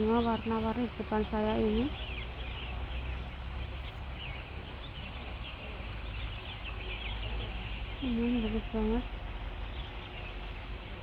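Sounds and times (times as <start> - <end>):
small birds chirping: 1.6 - 9.1.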